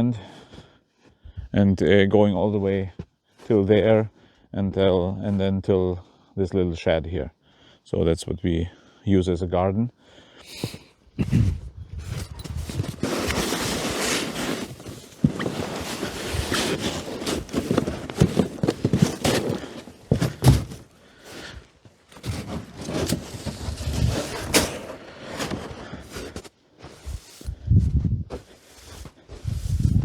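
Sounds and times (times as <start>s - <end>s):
shovel scraping and crunching: 12.0s - 27.6s
thuds: 17.4s - 20.9s.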